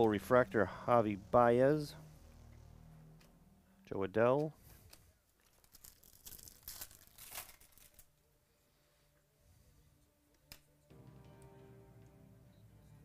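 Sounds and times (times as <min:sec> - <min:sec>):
faint background music: 0:00.0 - 0:13.0
cards and packaging rustling: 0:04.6 - 0:08.2.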